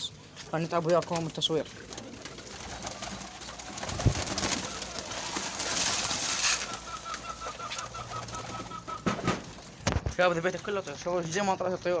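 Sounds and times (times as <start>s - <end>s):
pigeons cooing: 0.8s - 9.8s.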